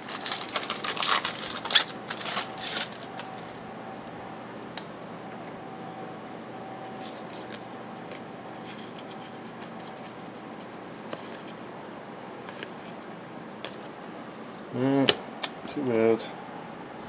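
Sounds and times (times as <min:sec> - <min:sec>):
steady background noise: 0:00.0 - 0:17.0
trading cards sliding and clicking: 0:12.3 - 0:14.7.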